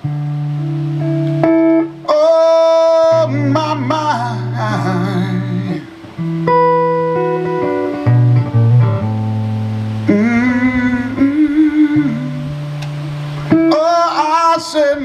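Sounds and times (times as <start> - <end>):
guitar plucked notes: 0.0 - 15.0
person singing blues: 0.0 - 15.0.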